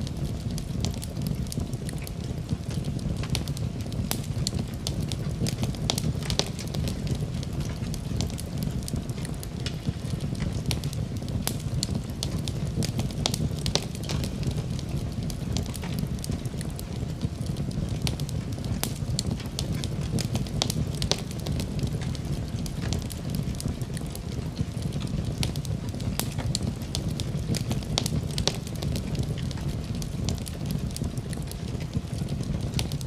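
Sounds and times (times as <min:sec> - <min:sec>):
fire burning in fireplace: 0:00.0 - 0:33.0
fire crackling and popping: 0:00.0 - 0:33.0.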